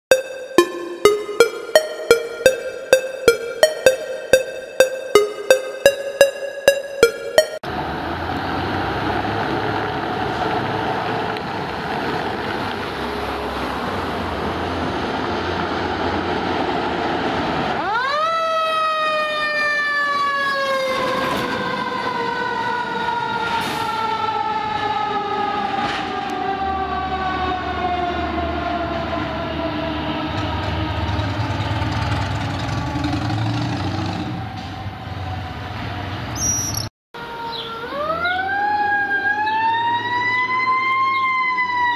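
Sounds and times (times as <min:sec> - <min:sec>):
fire engine siren: 0:17.7 - 0:36.0, 0:37.2 - 0:41.9.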